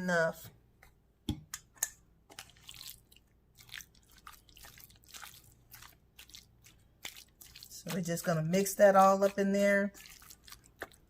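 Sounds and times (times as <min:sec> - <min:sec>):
wet squishing of raw chicken: 0:02.3 - 0:11.0.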